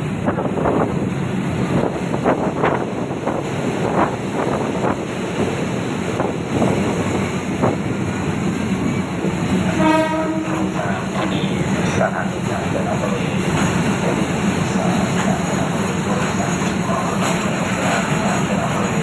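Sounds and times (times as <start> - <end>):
diesel train rumbling: 0.0 - 19.0
train horn: 9.6 - 11.6.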